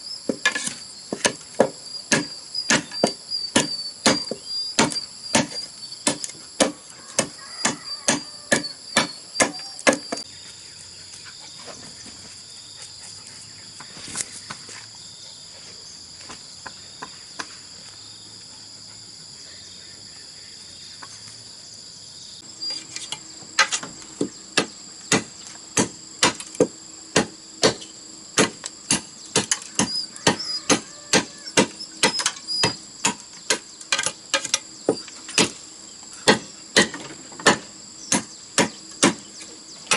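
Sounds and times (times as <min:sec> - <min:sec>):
insects trilling: 0:00.0 - 0:39.9
hand tool striking: 0:00.3 - 0:10.2.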